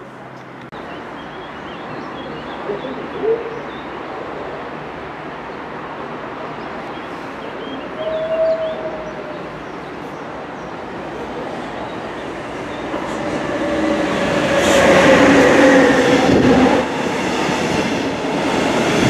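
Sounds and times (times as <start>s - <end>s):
birds chirping: 0.4s - 4.2s, 6.5s - 14.6s
electric train approaching: 1.0s - 19.0s.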